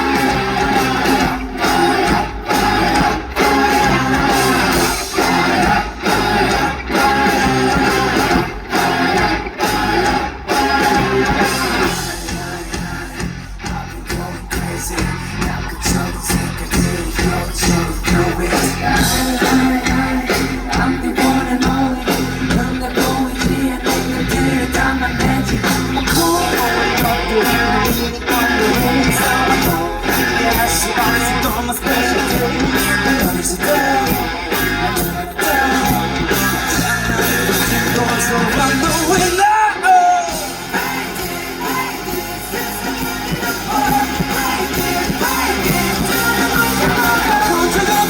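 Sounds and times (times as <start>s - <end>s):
bass: 0.0s - 48.0s
guitar: 0.0s - 48.0s
person singing: 0.0s - 48.0s
steady drum beat: 0.0s - 48.0s.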